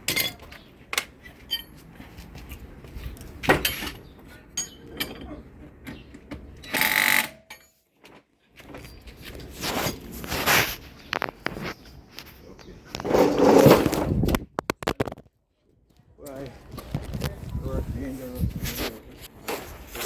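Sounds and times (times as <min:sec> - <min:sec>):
power tool bursts: 0:06.8 - 0:07.4.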